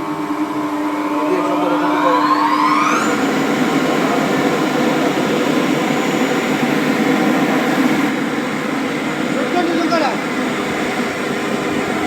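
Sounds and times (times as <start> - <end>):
motor speeding up: 0.0 - 8.1.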